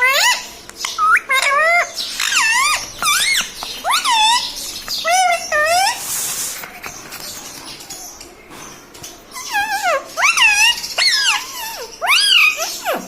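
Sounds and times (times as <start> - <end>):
parrot squealing calls: 0.0 - 6.1, 9.3 - 13.0.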